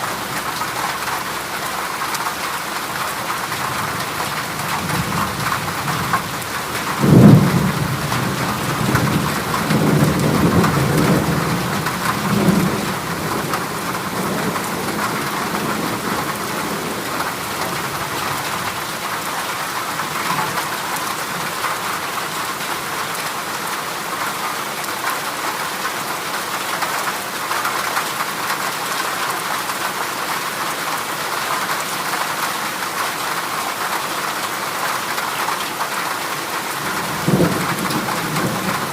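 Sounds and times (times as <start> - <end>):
heavy rain on metal roof: 0.0 - 38.9
thunder: 4.7 - 17.3.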